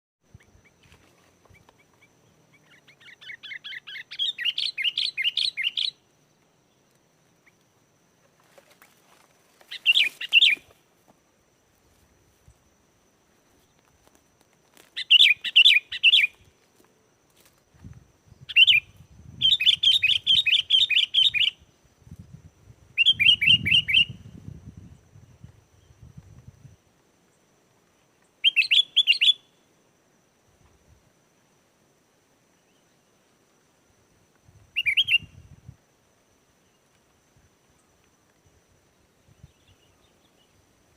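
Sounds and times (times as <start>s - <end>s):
bird chattering song: 1.5s - 6.0s, 9.7s - 10.7s, 15.0s - 16.4s, 18.5s - 21.6s, 23.0s - 24.2s, 28.4s - 29.4s, 34.8s - 35.3s.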